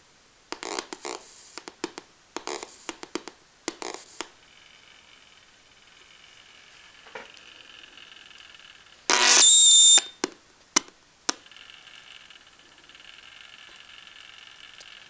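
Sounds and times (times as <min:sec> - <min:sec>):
faint electronic whine: 0:03.5 - 0:10.2, 0:11.0 - 0:15.0
loud buzzy electronic beep: 0:09.1 - 0:10.2.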